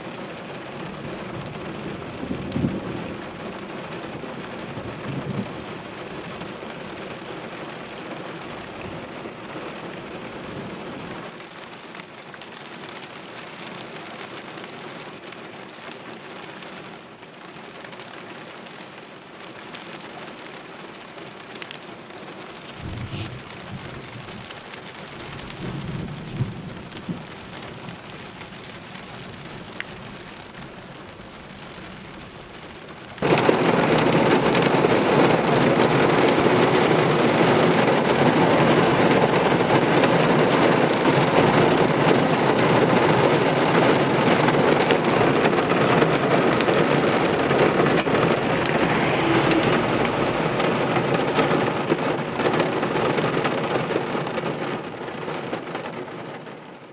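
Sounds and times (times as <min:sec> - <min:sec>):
rain on car windshield and roof: 0:00.0 - 0:56.9.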